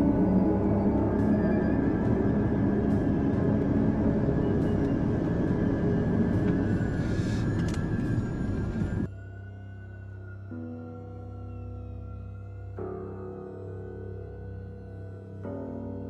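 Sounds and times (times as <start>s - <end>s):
road and wind rush: 0.0s - 9.1s.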